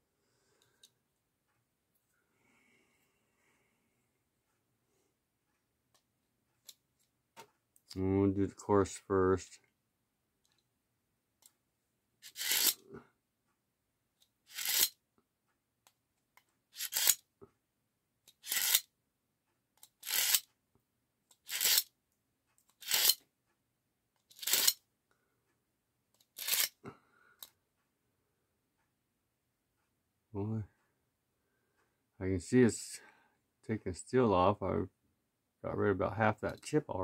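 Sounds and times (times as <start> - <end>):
knife rasping through sharpener: 12.2 - 12.8, 14.5 - 15.0, 16.8 - 17.2, 18.4 - 18.8, 20.0 - 20.5, 21.4 - 21.9, 22.8 - 23.2, 24.3 - 24.8, 26.4 - 26.8.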